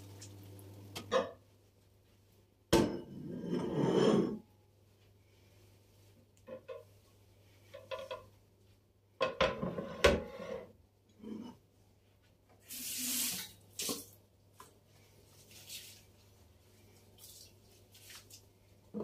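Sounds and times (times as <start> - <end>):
dishes clattering: 1.0 - 1.4, 9.2 - 10.4.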